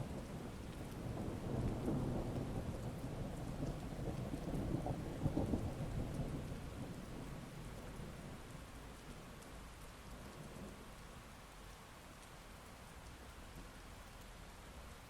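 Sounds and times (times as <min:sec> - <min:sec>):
heavy rain falling: 0:00.0 - 0:15.0
thunder rumbling: 0:00.1 - 0:08.3.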